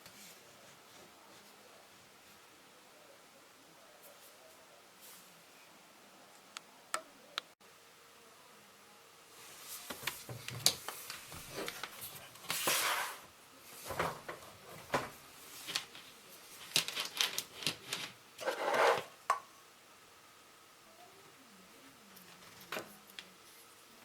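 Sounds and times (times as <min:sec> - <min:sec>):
scraping rubs: 0:18.0 - 0:19.1.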